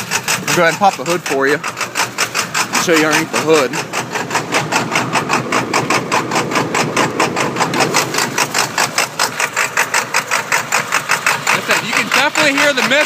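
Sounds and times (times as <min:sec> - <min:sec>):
diesel engine idling rough: 0:00.0 - 0:13.0.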